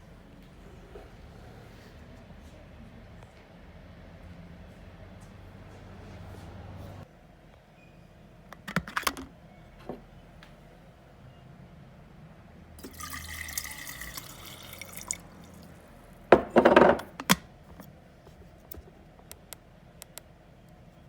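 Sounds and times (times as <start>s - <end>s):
water pouring into kettle: 12.8s - 16.0s.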